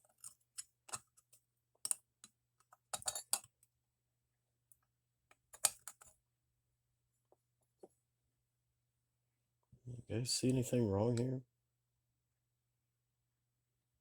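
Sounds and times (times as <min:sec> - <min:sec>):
small metal parts clicking: 0:02.9 - 0:03.5.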